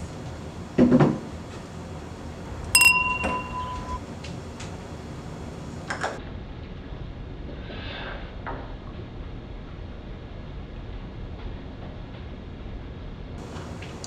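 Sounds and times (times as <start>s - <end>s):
glasses clinking: 2.8s - 4.0s.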